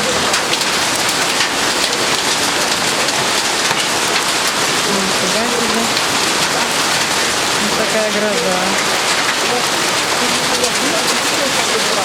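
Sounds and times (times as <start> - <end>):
hail hitting: 0.0 - 12.0
heavy rain: 0.0 - 12.0.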